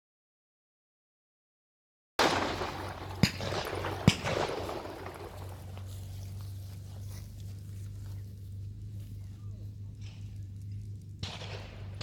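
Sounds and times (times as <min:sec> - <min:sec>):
shotgun shots with echo: 0:02.2 - 0:05.9, 0:11.2 - 0:12.0
steady low hum: 0:02.2 - 0:12.0.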